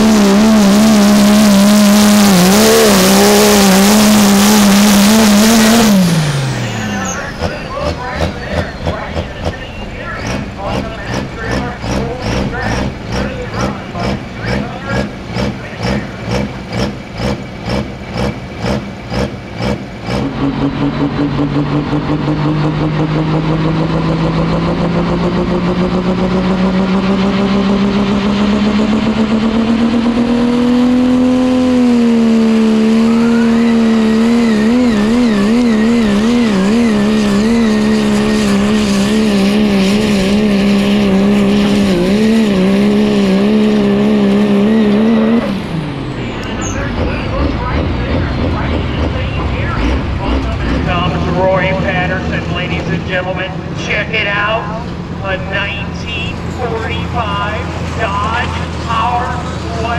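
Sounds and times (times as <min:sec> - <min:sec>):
truck engine idling and revving: 0:00.0 - 0:59.9.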